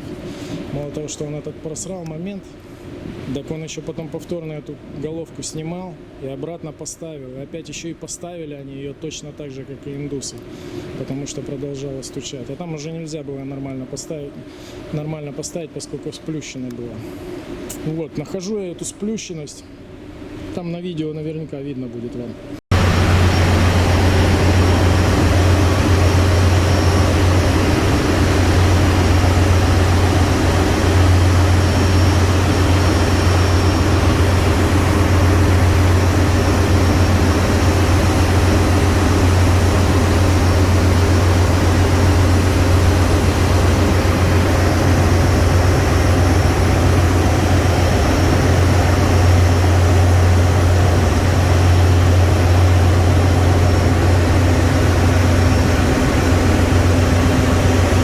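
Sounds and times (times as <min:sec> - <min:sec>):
even rushing noise: 0:22.7 - 0:58.0
ship machinery droning: 0:22.7 - 0:58.0.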